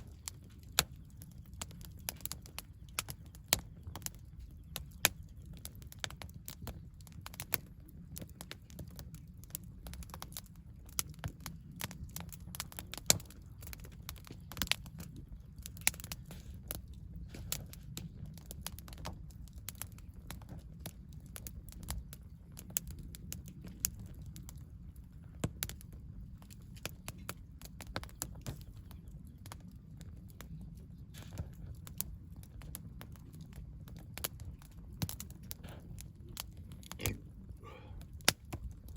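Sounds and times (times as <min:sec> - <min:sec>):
campfire crackling and popping: 0:00.0 - 0:38.9
low steady rumble: 0:25.9 - 0:38.9.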